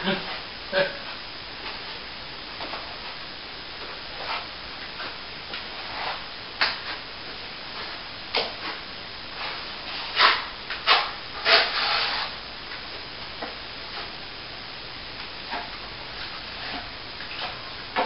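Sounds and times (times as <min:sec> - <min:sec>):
hand tool scraping plaster: 0:09.4 - 0:12.4.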